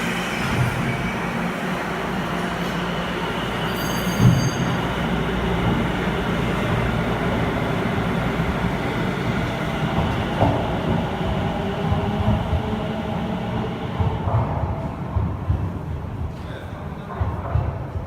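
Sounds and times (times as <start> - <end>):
railcar wheels rumbling on rail: 0.0 - 18.0.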